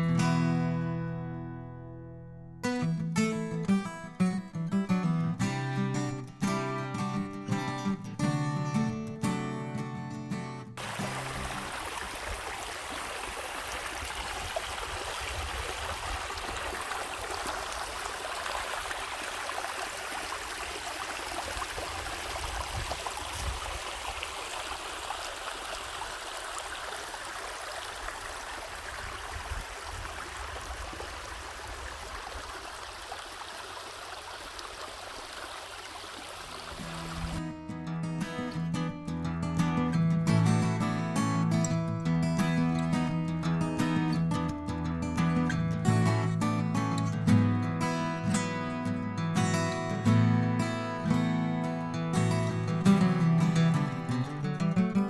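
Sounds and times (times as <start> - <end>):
stream rushing over rocks: 10.8 - 37.4.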